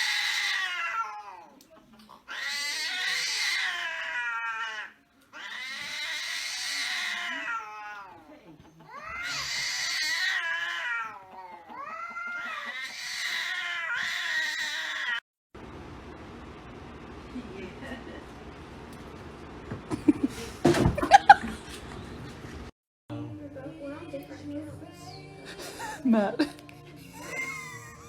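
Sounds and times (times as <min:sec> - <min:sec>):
cats yowling: 0:00.0 - 0:01.6, 0:02.3 - 0:08.3, 0:08.9 - 0:15.2, 0:27.1 - 0:28.0.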